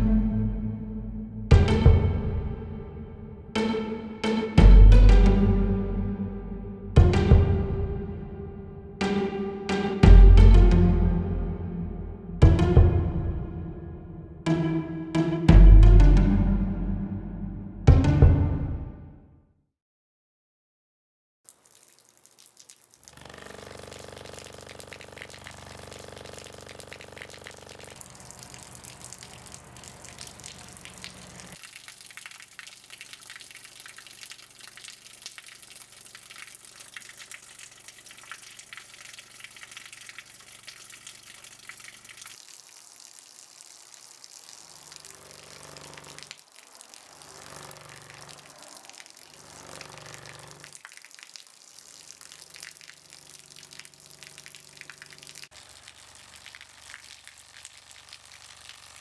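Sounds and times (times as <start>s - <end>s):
running water gushing: 21.5s - 59.0s.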